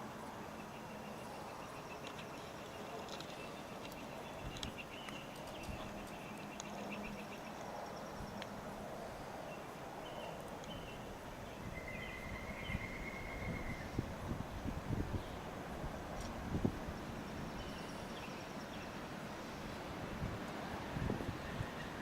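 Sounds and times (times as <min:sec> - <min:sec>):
low rush of wind: 0:00.0 - 0:22.0
small birds chirping: 0:00.4 - 0:08.5, 0:09.1 - 0:15.5.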